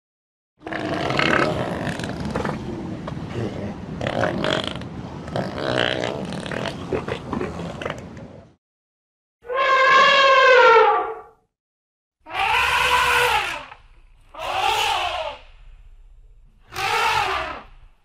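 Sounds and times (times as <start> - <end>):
elephant rumbles and grunts: 0.6 - 8.6, 12.3 - 18.0.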